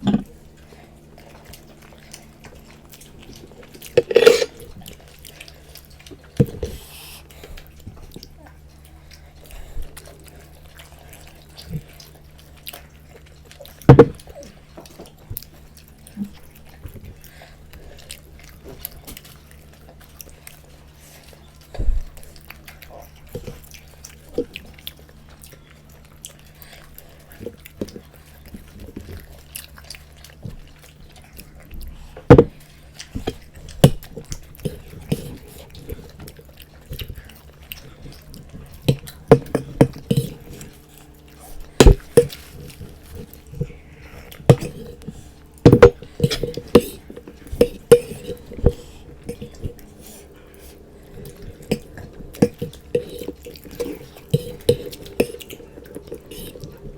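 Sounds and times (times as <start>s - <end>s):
chewing food: 0.0s - 56.9s
steady low hum: 0.0s - 56.9s
wet mouth clicks: 38.9s - 56.8s.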